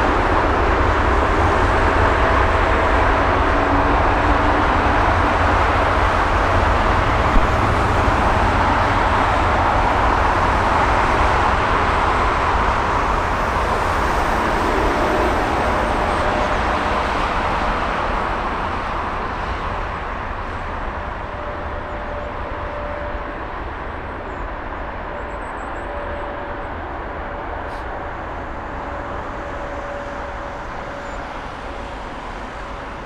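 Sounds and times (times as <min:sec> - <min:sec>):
jet engines roaring: 0:00.0 - 0:25.0
faint steady whine: 0:03.0 - 0:18.4.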